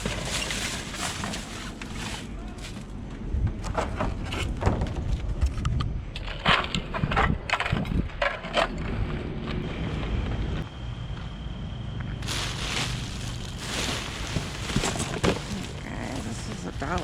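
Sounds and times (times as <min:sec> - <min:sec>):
bags crinkling and rustling: 0:00.0 - 0:02.9, 0:12.2 - 0:17.0
rummaging through trash: 0:00.0 - 0:03.1, 0:12.2 - 0:17.0.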